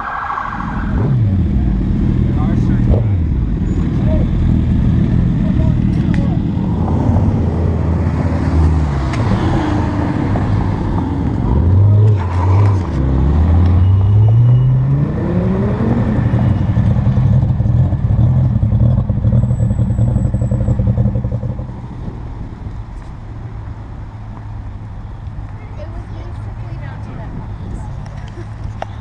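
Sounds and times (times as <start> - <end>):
car engine accelerating: 0.1 - 22.1.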